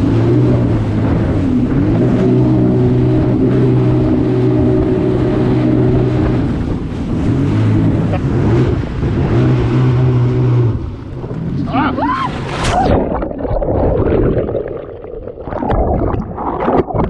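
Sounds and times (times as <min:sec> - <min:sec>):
jet ski engine droning: 0:00.0 - 0:13.0
wind and water rushing: 0:00.0 - 0:17.0.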